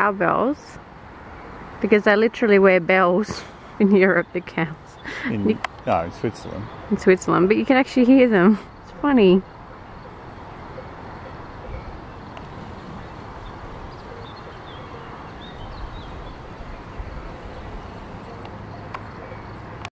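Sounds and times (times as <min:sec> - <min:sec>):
outdoor noise: 0:00.0 - 0:19.9
wind rumble on microphone: 0:08.7 - 0:19.5.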